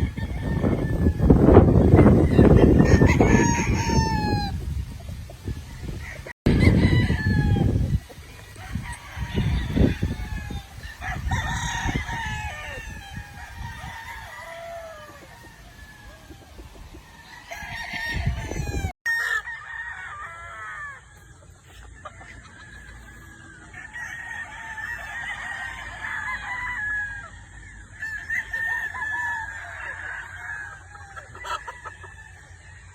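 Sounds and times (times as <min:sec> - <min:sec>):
hens clucking: 0:00.0 - 0:19.4, 0:20.3 - 0:32.9
roosters crowing: 0:00.0 - 0:32.9.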